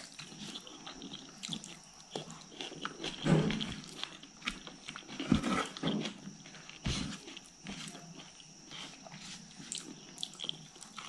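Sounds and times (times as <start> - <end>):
food mixed by hand: 2.4 - 11.0.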